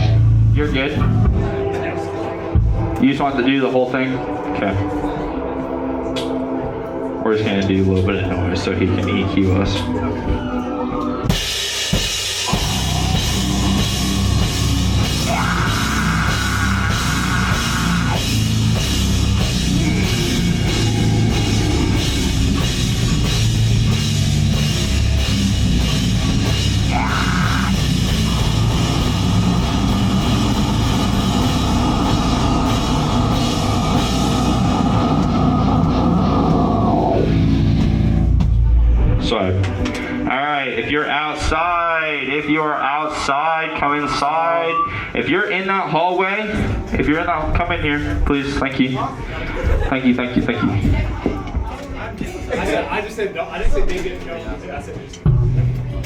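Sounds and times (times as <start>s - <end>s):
drum kit and cymbals: 11.2s - 39.0s
live band playing loud: 11.2s - 39.0s.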